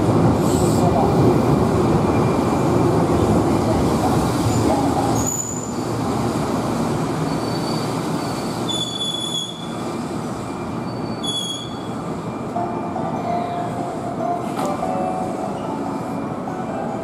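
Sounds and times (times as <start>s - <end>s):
high-pitched wheel squeals: 7.3s - 9.8s, 10.8s - 11.9s.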